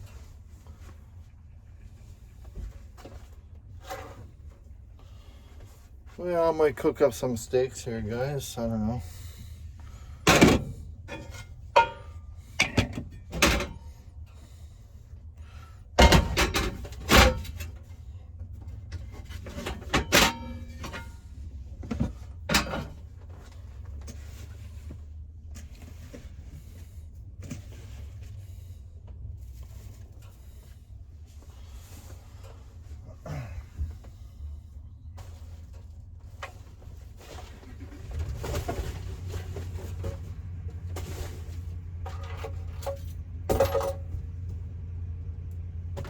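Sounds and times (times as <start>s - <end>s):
low steady rumble: 0.0s - 46.0s
knocks and clatters of gear: 9.3s - 14.6s, 15.4s - 34.4s, 35.1s - 44.8s.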